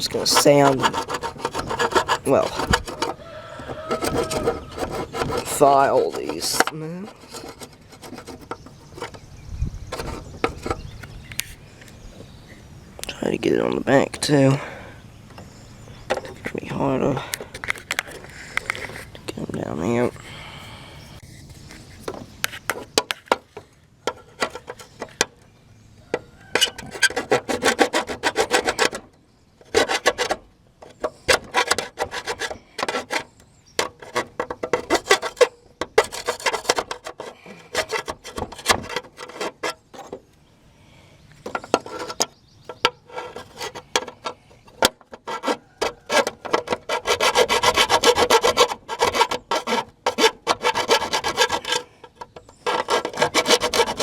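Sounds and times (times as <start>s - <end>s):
hand file scraping metal: 0.0s - 11.0s, 26.5s - 40.3s, 41.4s - 54.0s.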